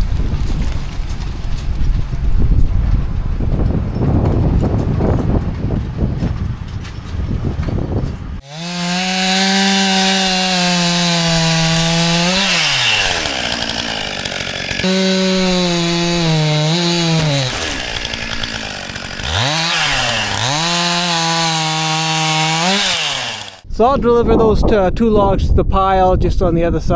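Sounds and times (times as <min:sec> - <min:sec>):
chainsaw cutting logs: 0:08.3 - 0:23.6.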